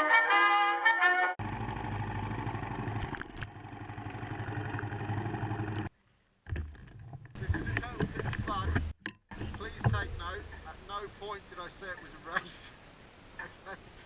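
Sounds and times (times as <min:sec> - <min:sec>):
motorcycle engine rumbling: 0:01.4 - 0:12.4.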